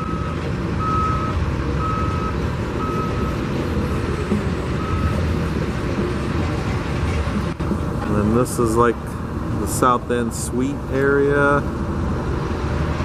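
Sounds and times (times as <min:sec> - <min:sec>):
reversing alarm beeping: 0:00.0 - 0:06.1.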